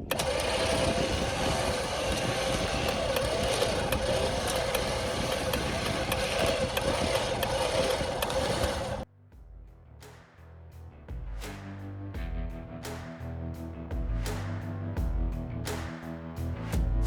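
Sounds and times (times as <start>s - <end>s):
engine running steadily: 0.1s - 9.0s.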